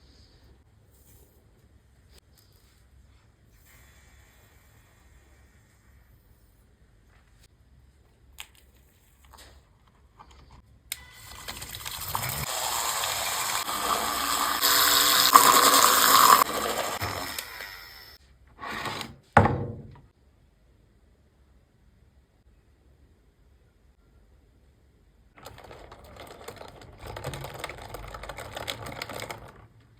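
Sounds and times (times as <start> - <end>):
espresso machine hissing: 12.0 - 18.2.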